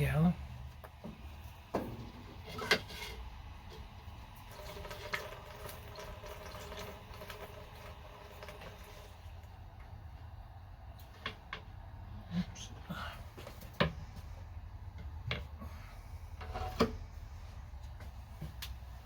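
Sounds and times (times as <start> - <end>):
liquid pouring into metal tank: 4.3 - 9.4.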